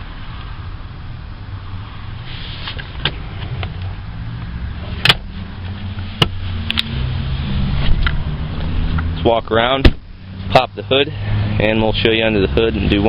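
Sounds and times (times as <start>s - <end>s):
sharp clicks and knocks: 5.0s - 5.3s.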